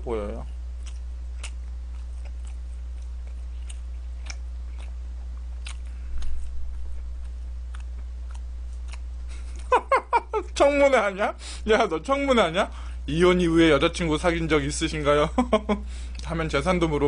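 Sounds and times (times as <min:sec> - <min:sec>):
steady low hum: 0:00.0 - 0:17.0
person chewing food: 0:00.4 - 0:09.8.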